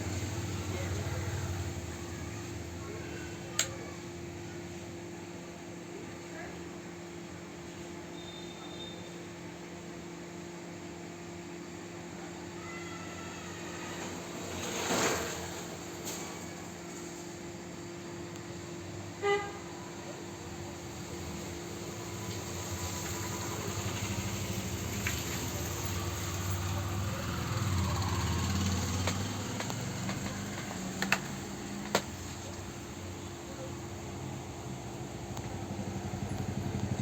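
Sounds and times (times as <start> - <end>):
street traffic rumble: 0.0 - 4.6, 13.6 - 17.5, 18.9 - 37.0
short horn toot: 8.2 - 9.2
vehicle passing: 21.0 - 37.0.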